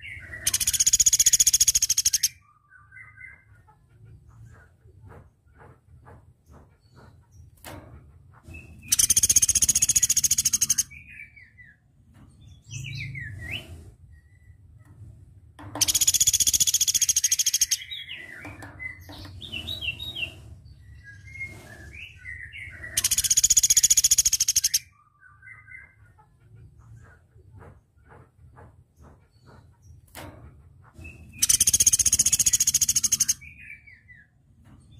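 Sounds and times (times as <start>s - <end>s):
bird rattling trills: 0.4s - 2.3s, 8.6s - 10.9s, 15.8s - 20.4s, 22.9s - 24.8s, 31.1s - 33.5s
bird chirps and whistles: 0.4s - 3.3s, 8.9s - 10.9s, 15.8s - 17.9s, 21.2s - 25.9s, 31.4s - 33.8s.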